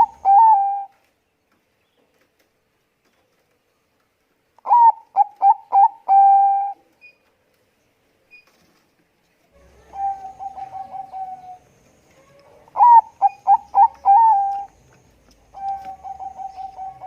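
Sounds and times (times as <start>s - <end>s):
dove cooing: 0.0s - 0.9s, 4.6s - 6.8s, 9.6s - 17.0s.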